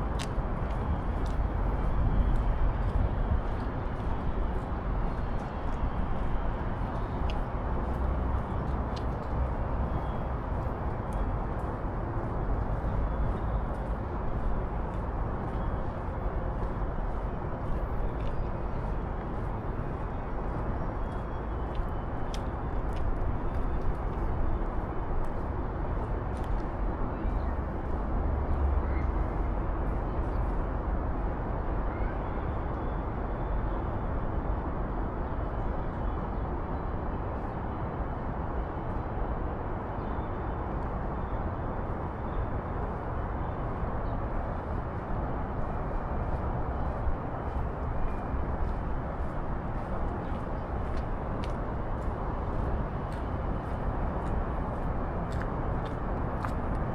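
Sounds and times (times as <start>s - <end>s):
traffic hum: 40.6s - 56.9s.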